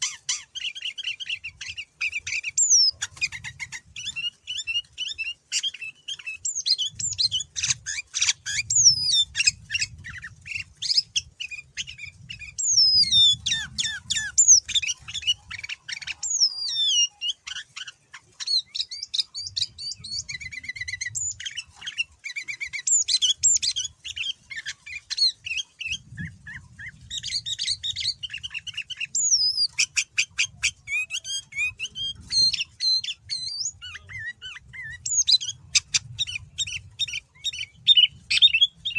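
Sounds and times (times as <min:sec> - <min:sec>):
bird chattering trills: 0:00.0 - 0:38.9
bird whistled notes: 0:10.8 - 0:17.6, 0:22.4 - 0:38.9.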